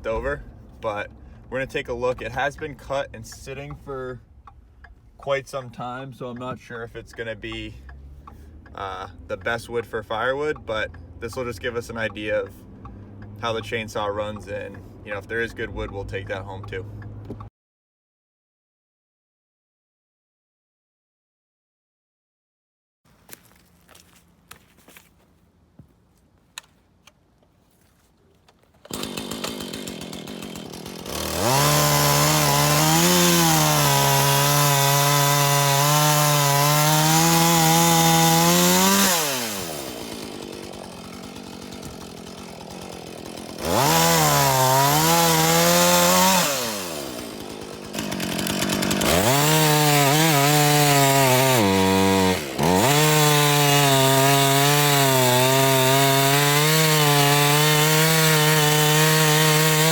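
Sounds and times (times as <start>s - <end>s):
chainsaw cutting logs: 0.0s - 17.5s, 23.1s - 59.9s.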